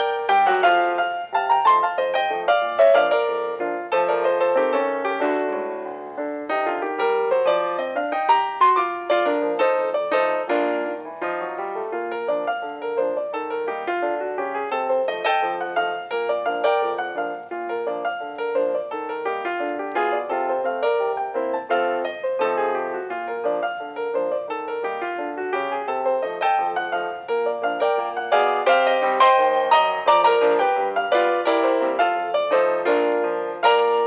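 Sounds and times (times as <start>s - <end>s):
piano music quick notes: 0.0s - 34.0s.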